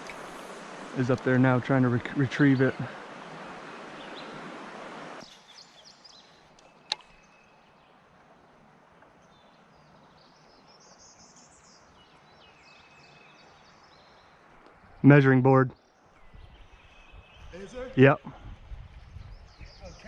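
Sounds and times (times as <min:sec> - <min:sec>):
river ambience: 0:00.0 - 0:18.1
sharp click: 0:06.9 - 0:07.2
faint bird chirps: 0:19.1 - 0:20.0.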